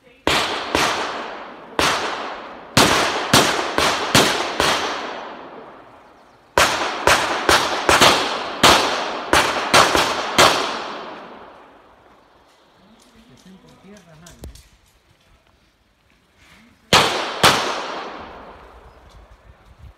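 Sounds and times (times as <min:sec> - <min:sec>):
pistol shots: 0:00.2 - 0:05.9, 0:06.6 - 0:11.7, 0:16.9 - 0:18.6.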